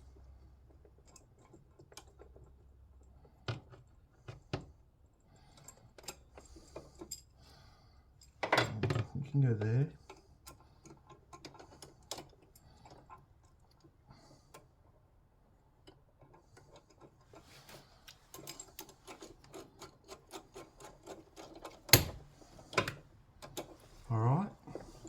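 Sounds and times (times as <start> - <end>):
metallic clicks from hand tools: 18.0 - 23.7.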